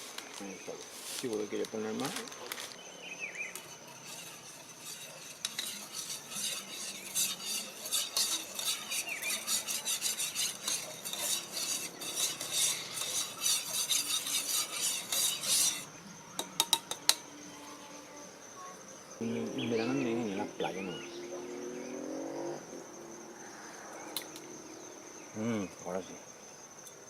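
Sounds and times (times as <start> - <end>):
spoon scraping in a cup: 3.5 - 15.9.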